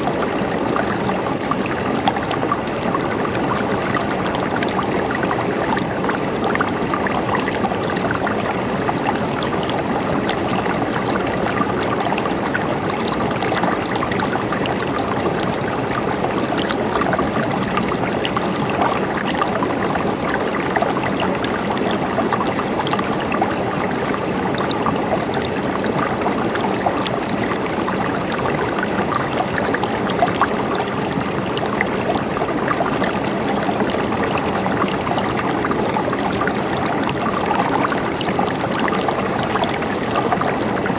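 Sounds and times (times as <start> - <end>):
stream water running: 0.0 - 40.9.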